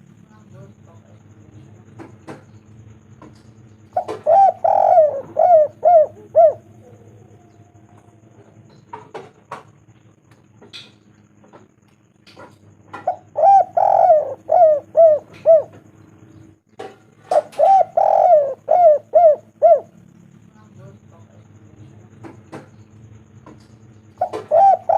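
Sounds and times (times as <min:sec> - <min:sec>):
dove cooing: 0:01.4 - 0:09.6, 0:12.5 - 0:16.5, 0:17.1 - 0:20.2, 0:23.5 - 0:24.9.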